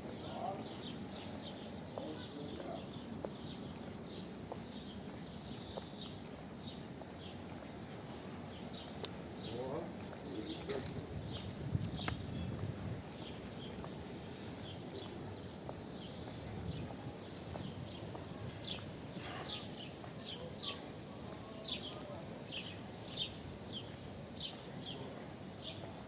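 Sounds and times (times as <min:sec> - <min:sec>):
small birds chirping: 0:00.1 - 0:26.0
murmur of voices: 0:09.4 - 0:15.4, 0:16.2 - 0:26.0.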